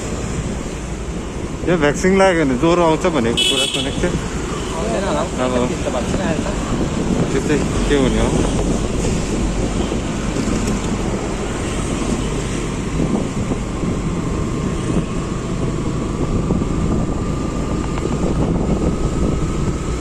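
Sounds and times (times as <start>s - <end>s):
road noise: 0.0s - 20.0s
wind buffeting microphone: 5.2s - 20.0s.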